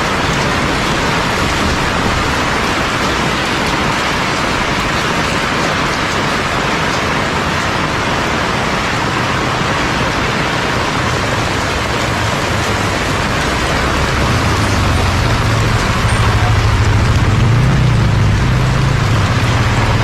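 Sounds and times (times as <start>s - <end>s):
heavy rain pouring: 0.0s - 20.0s
low rumble: 12.9s - 20.0s.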